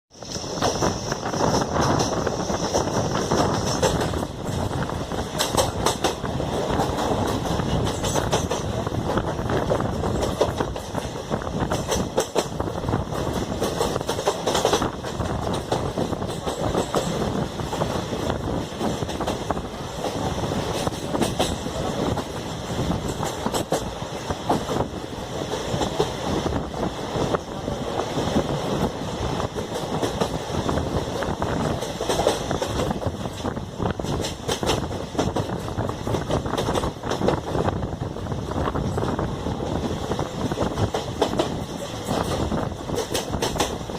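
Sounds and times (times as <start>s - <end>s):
train wheels rumbling on rails: 0.0s - 43.9s
wheels clicking over rail joints: 0.2s - 26.2s, 28.9s - 37.7s, 40.5s - 43.9s.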